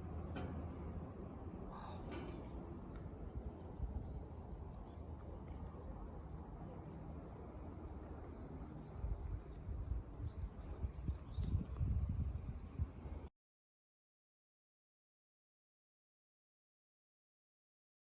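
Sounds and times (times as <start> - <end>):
crickets chirping: 0.0 - 13.3.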